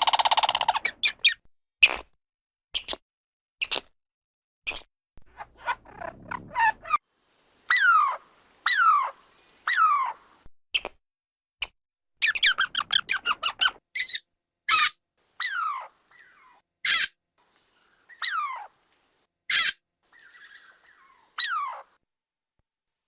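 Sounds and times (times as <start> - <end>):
squirrel squeaky calls: 0.0 - 1.4, 7.6 - 10.9, 12.2 - 18.9, 19.5 - 21.9
squirrel chipping: 7.6 - 10.4, 12.2 - 21.9.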